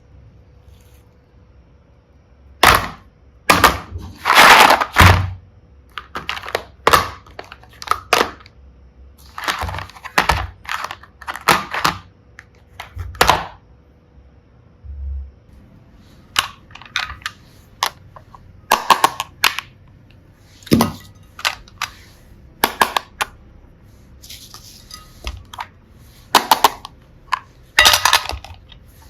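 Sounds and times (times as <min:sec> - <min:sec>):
plastic pieces clicking and clattering: 0:02.6 - 0:05.3, 0:05.9 - 0:08.5, 0:09.2 - 0:13.6, 0:16.3 - 0:19.8, 0:20.6 - 0:22.0, 0:22.6 - 0:23.3, 0:26.3 - 0:29.0.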